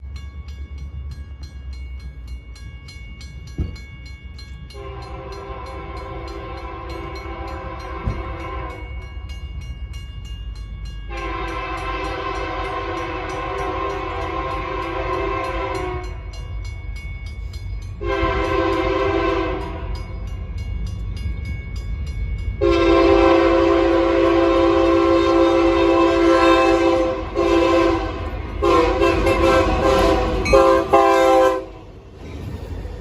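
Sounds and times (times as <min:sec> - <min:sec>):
low rumble of passing train: 0:00.0 - 0:33.0
locomotive horn blasts: 0:04.8 - 0:09.0, 0:11.1 - 0:16.3, 0:18.0 - 0:20.0, 0:22.6 - 0:31.9.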